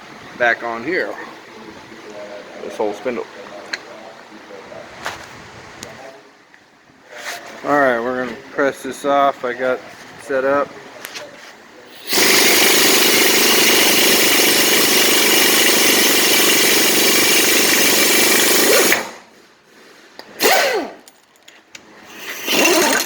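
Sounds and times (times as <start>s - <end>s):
power tool hammering: 12.0s - 19.2s, 20.4s - 21.1s, 22.2s - 23.0s
loud burst of noise: 12.0s - 19.3s, 22.1s - 23.0s.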